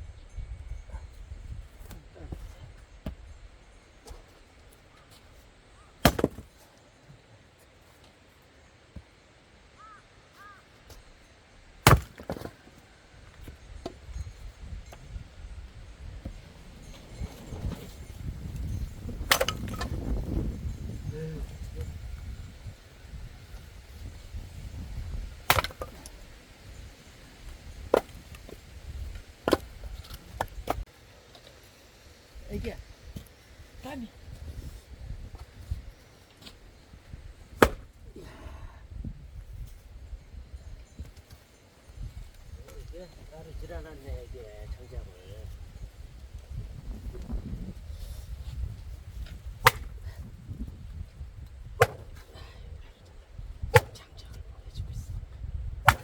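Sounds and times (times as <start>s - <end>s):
split wood clattering: 6.0s - 6.6s, 11.8s - 12.8s, 17.3s - 20.2s, 25.4s - 26.2s, 27.8s - 31.5s, 37.5s - 37.9s, 49.2s - 50.0s, 51.8s - 52.3s
axe splitting firewood: 6.0s - 6.7s, 11.8s - 14.2s, 17.2s - 20.6s, 25.2s - 26.4s, 27.6s - 30.8s, 37.4s - 38.4s, 48.0s - 51.0s, 51.7s - 52.5s, 53.6s - 54.0s, 55.8s - 56.0s.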